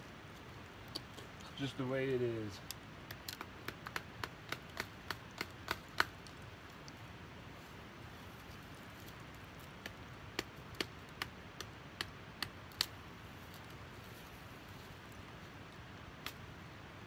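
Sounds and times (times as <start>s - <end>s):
knife chopping a branch: 2.7s - 6.4s, 9.6s - 13.0s.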